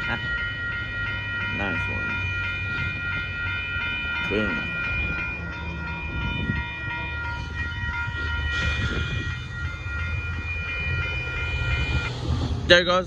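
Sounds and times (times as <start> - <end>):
crossing warning bell ringing: 0.0 - 13.0
passenger train rumbling past: 0.0 - 13.0.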